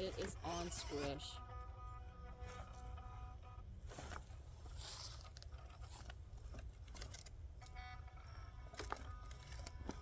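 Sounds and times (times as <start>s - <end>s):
rough scraping and crunching: 3.8s - 7.2s.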